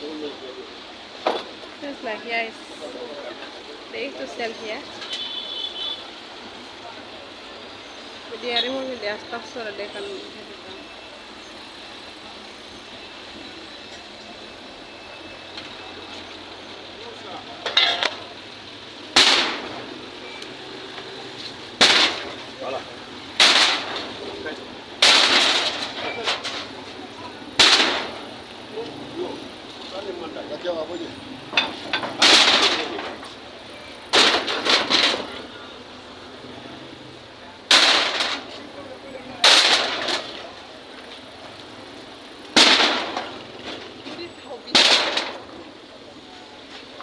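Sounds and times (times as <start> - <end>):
outdoor background noise: 0.0 - 47.0
demolition crashes: 19.1 - 20.1, 21.7 - 22.6, 23.4 - 28.4, 31.6 - 33.4, 34.1 - 35.6, 37.6 - 38.6, 39.4 - 40.7, 42.5 - 44.1, 44.7 - 45.6
loud sudden bang: 27.6 - 28.2.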